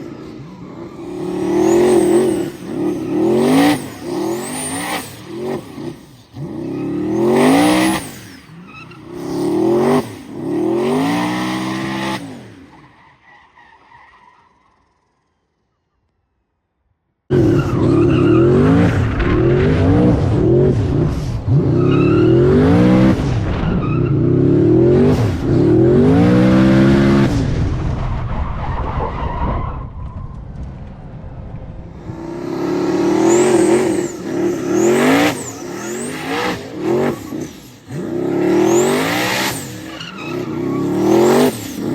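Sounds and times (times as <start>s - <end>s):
race car engine revving: 17.3s - 27.6s, 31.9s - 41.9s.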